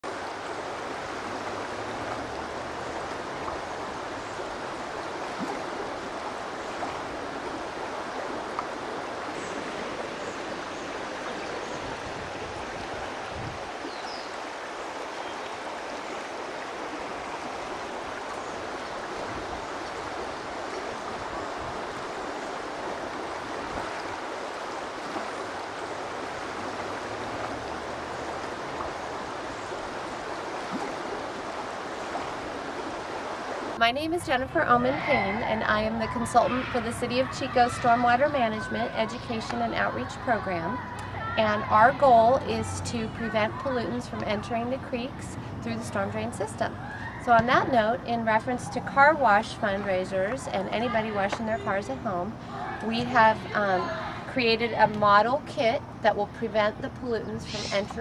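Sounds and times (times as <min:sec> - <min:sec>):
rush of flowing water: 0:00.0 - 0:58.0.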